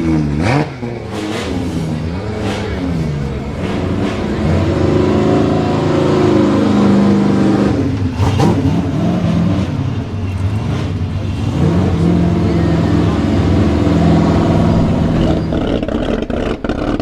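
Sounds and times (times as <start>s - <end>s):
car engine revving hard: 0.0s - 17.0s
exhaust crack: 13.5s - 17.0s.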